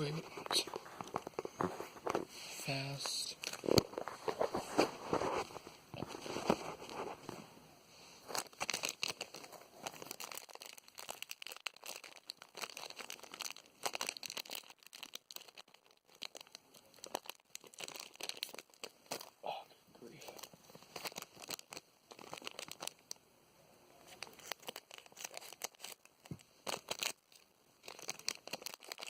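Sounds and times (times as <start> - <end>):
foil wrapper crinkling and tearing: 3.3 - 7.3, 8.2 - 19.4, 20.1 - 23.2, 24.0 - 29.0.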